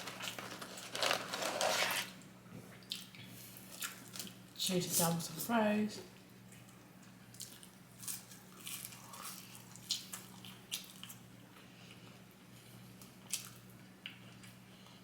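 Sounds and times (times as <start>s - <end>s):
close chewing and mouth smacks: 2.7s - 4.6s, 6.5s - 15.0s.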